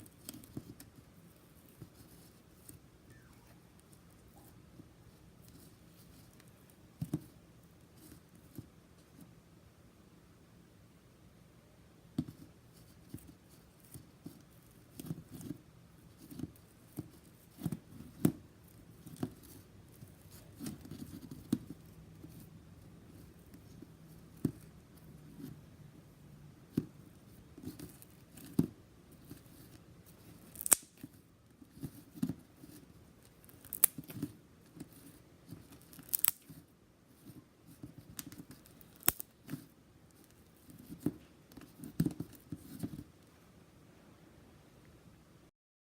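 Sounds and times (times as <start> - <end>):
slime clicks and crackles: 30.5 - 31.0, 33.5 - 34.3, 35.8 - 36.6, 38.0 - 39.3.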